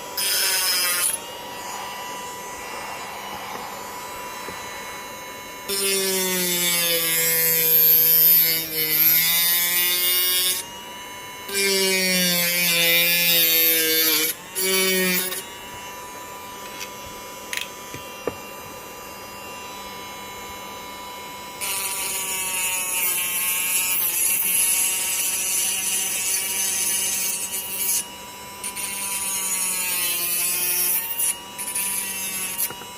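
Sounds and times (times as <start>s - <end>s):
electric motor humming: 0.0s - 18.5s.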